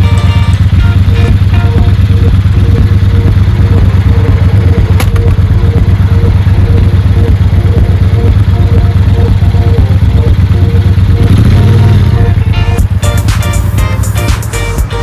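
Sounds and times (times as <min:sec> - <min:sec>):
motorcycle engine rumbling: 0:00.0 - 0:15.0
sharp click: 0:04.9 - 0:05.4.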